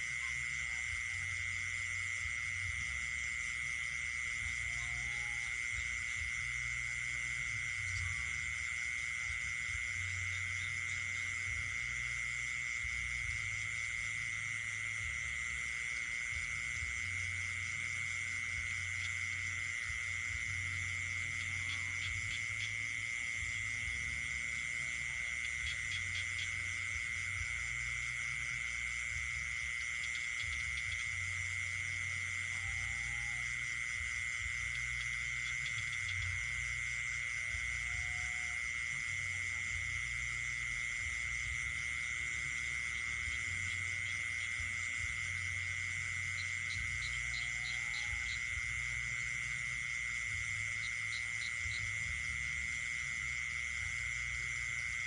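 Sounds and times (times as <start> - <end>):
chorus of insects and frogs: 0.0 - 55.0
high steady insect trill: 0.0 - 55.0.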